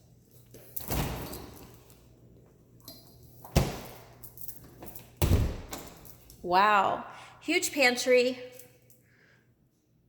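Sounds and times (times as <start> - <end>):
kitchen doors knocking shut: 3.5 - 4.0, 5.2 - 5.9.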